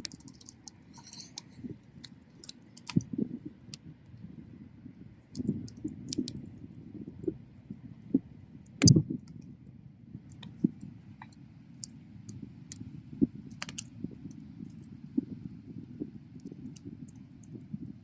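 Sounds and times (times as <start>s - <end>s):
wood snapping and popping: 0.0s - 3.2s, 13.5s - 13.9s.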